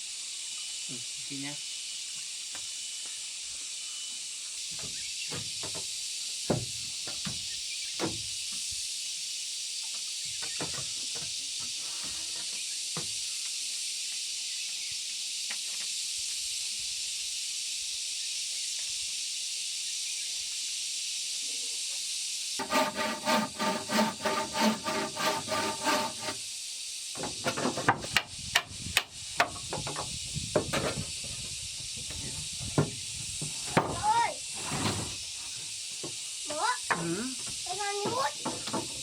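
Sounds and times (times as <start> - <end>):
steady high hiss: 0.0 - 5.2, 5.8 - 10.2, 12.7 - 22.6, 26.4 - 39.0
hand saw cutting wood: 22.6 - 26.4.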